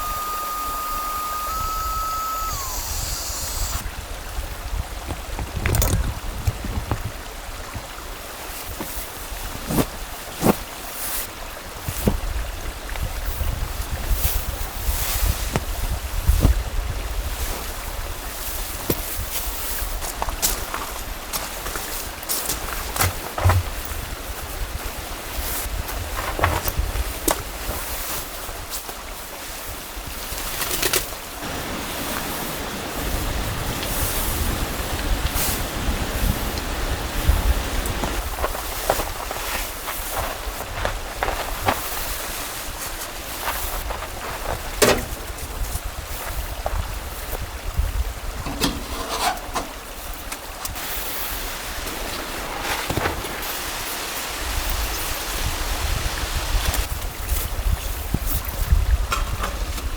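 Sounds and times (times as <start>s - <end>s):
water flowing: 0.0s - 18.8s, 31.4s - 38.5s
sharp clicks and knocks: 5.1s - 7.1s
knocks and rubbing from handling: 22.9s - 23.8s
mountain stream rushing: 31.2s - 48.9s.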